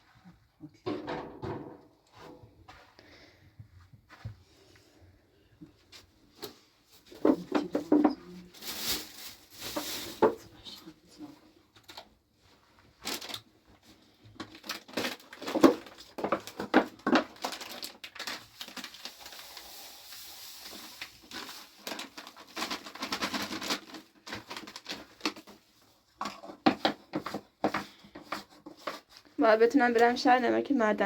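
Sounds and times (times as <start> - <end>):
handling crunching and rustling: 12.9 - 19.6, 20.6 - 29.3.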